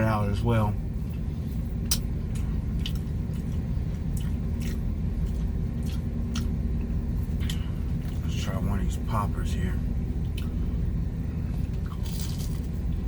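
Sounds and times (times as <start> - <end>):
vehicle engine rumble: 0.0 - 13.0
chewing fried chicken: 1.0 - 8.4, 11.5 - 13.0
crisp crunches: 11.9 - 12.8.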